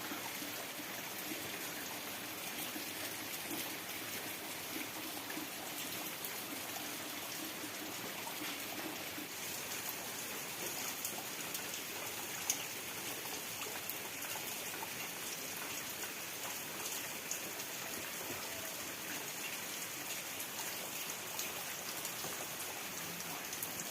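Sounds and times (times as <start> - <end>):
rain drops pattering: 0.0 - 23.9.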